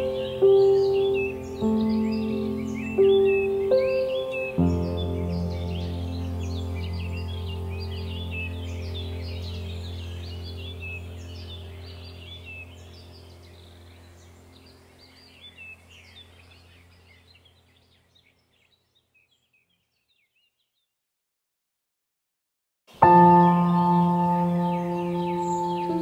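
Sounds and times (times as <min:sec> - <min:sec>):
low steady drone: 0:00.0 - 0:16.5, 0:23.2 - 0:26.0
small birds chirping: 0:00.0 - 0:21.0, 0:22.9 - 0:26.0.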